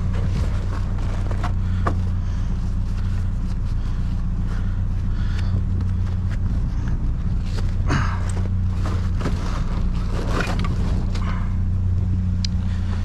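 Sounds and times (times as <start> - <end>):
vehicle engine idling: 0.0 - 13.0
items rustling and clicking: 7.4 - 11.4.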